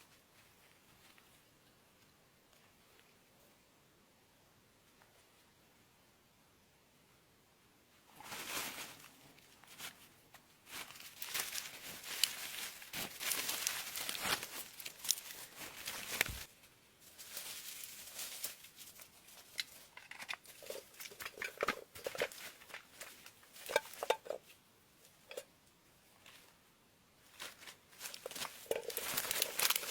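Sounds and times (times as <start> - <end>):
material rustling and tearing: 10.7 - 16.5, 27.4 - 29.9.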